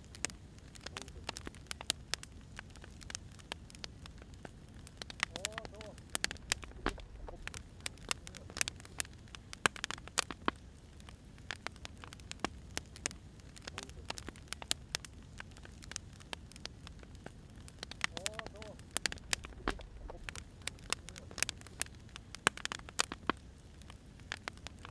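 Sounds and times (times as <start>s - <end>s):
firewood crackling and popping: 0.0s - 24.9s
low steady rumble: 4.0s - 8.6s, 16.5s - 22.3s.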